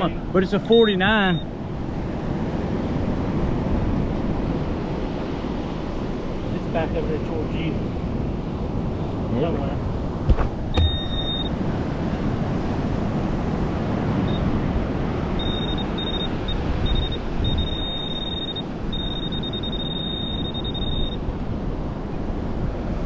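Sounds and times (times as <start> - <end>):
rushing storm wind: 0.0 - 23.0
metal detector beeping: 10.7 - 11.5, 15.4 - 21.2.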